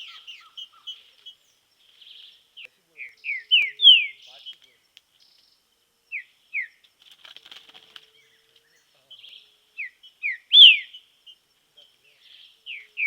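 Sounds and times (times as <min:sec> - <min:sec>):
soft bird twittering: 0:00.0 - 0:06.9, 0:08.2 - 0:13.0
bird whistling downward notes: 0:10.2 - 0:10.9.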